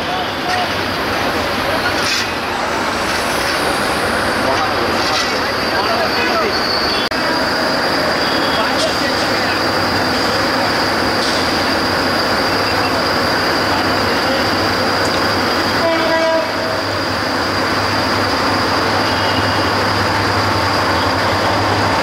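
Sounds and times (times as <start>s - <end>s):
diesel train rumble: 0.0s - 22.0s
train horn blast: 15.8s - 16.8s.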